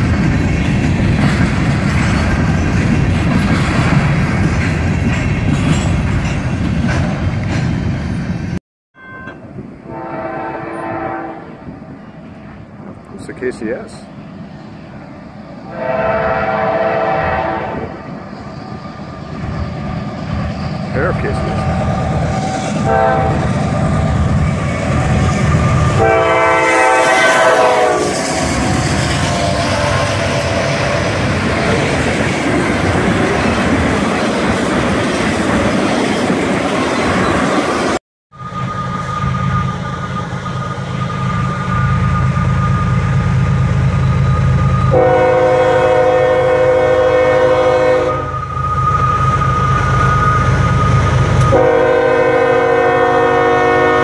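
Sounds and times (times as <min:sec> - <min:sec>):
diesel locomotive engine rumbling: 0:00.0 - 0:54.0
train rumble and wheel noise: 0:00.0 - 0:54.0
chord horn blasts: 0:09.0 - 0:11.7, 0:15.7 - 0:17.9, 0:22.8 - 0:23.5, 0:26.0 - 0:28.2, 0:44.9 - 0:48.3, 0:51.4 - 0:54.0
train horn blast: 0:09.1 - 0:11.8, 0:15.7 - 0:18.0, 0:22.4 - 0:23.5, 0:25.9 - 0:28.3, 0:29.3 - 0:31.2, 0:44.9 - 0:48.4, 0:51.4 - 0:54.0.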